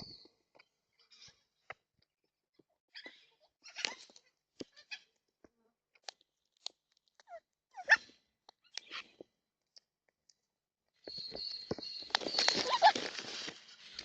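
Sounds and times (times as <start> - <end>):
beaks crunching seed: 11.1 - 14.0
wing flapping: 12.1 - 14.0
bird squawk: 12.2 - 13.1.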